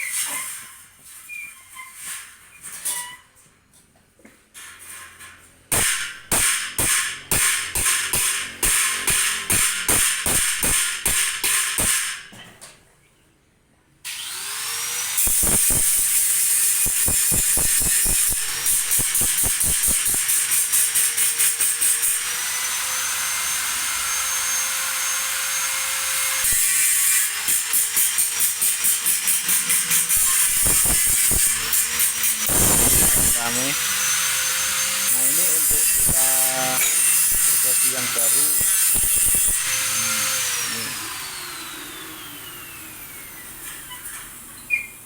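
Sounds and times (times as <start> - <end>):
sharp regular tool strikes: 5.7 - 12.3.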